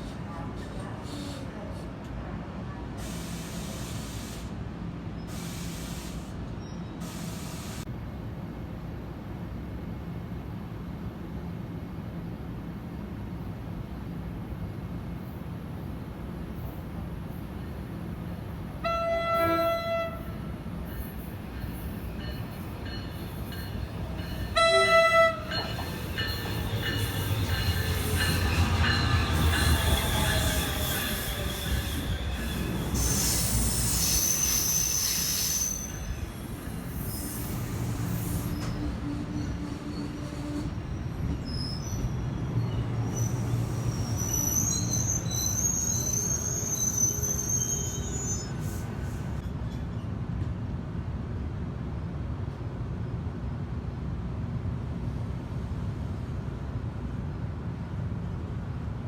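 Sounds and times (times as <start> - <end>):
train wheels rumbling on rail: 11.1 - 59.0
train horn blasts: 18.8 - 20.6, 24.5 - 25.6
high wheel squeal: 21.0 - 49.4.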